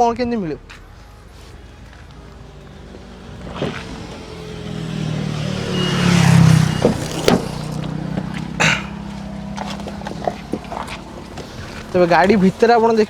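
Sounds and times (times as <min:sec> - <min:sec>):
vehicle engine running: 0:00.0 - 0:13.0
sharp clicks and clunks: 0:06.2 - 0:12.6.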